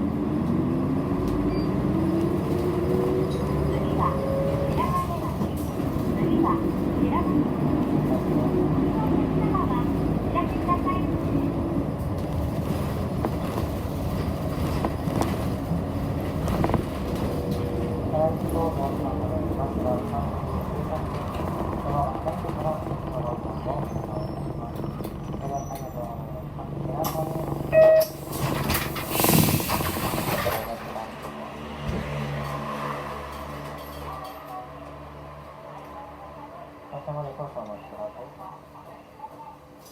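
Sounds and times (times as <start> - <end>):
bus engine and road rumble: 0.0 - 39.9
short electronic beep: 27.7 - 28.2.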